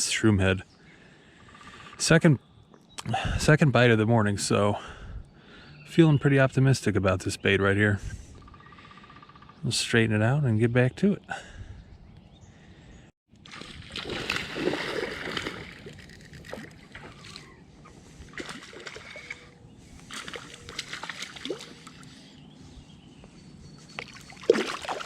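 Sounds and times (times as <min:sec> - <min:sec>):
fish splashing in water: 0:13.4 - 0:17.6, 0:18.2 - 0:22.2, 0:24.0 - 0:25.0.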